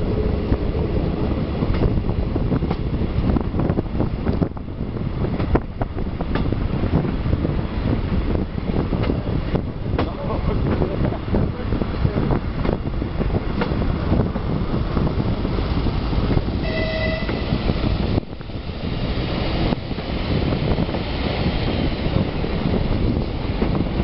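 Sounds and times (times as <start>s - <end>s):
railcar wheels rumbling and clicking: 0.0s - 24.0s
wind at open window: 0.0s - 24.0s
train horn blast: 16.6s - 17.7s.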